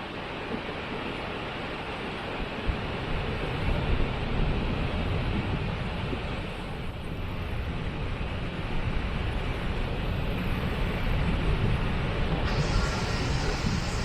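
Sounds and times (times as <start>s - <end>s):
waterfall rushing: 12.5s - 14.0s.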